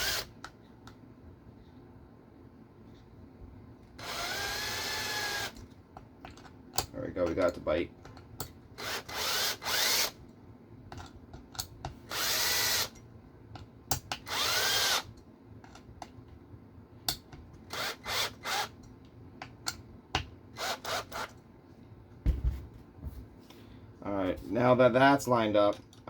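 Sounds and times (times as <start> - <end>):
electric screwdriver running: 0.0 - 0.3, 4.0 - 5.6, 8.8 - 10.2, 12.1 - 12.9, 14.2 - 15.1, 17.7 - 18.7, 20.6 - 21.3.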